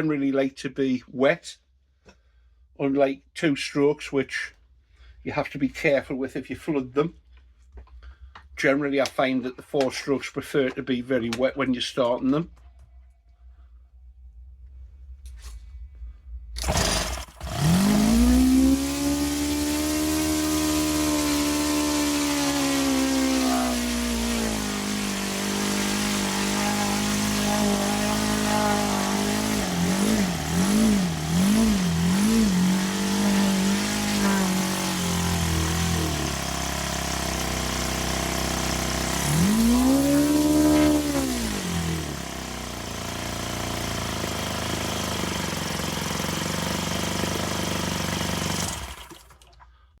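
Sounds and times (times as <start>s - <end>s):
model aircraft engine revving: 16.6s - 49.3s.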